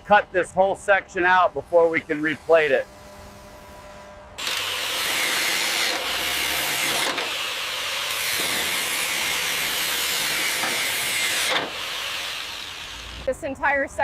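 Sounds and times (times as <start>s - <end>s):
power tool cutting steel hiss: 4.4s - 13.3s.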